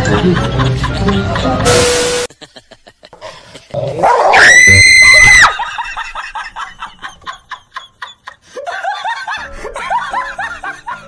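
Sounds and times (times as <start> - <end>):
person laughing: 2.3 - 3.9
person screaming: 4.3 - 5.5.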